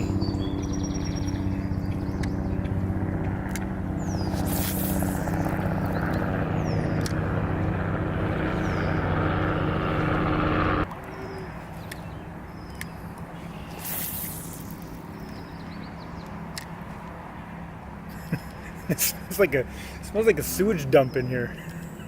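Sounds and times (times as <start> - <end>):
bird chirps: 0.0 - 2.7, 4.0 - 7.1, 11.0 - 16.4
helicopter passing overhead: 0.0 - 22.0.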